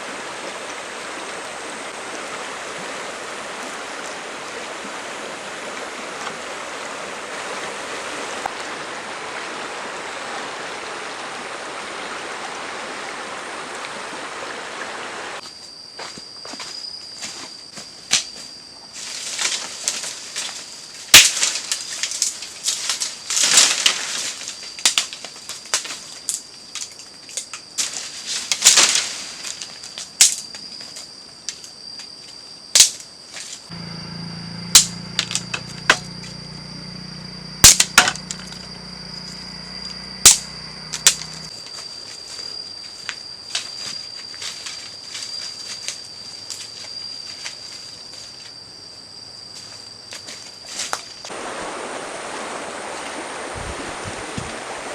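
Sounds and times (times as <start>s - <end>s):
high-pitched insect drone: 15.4s - 19.6s, 33.7s - 51.3s
sharp snaps and knocks: 21.1s - 24.0s, 24.8s - 26.0s, 37.6s - 38.7s.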